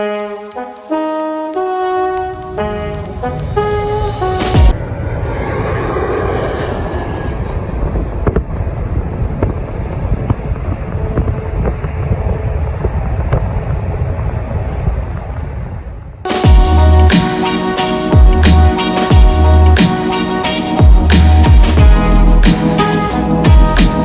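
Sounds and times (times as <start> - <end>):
jet engines rumbling: 0.1 - 24.0
wind buffeting microphone: 1.6 - 16.8.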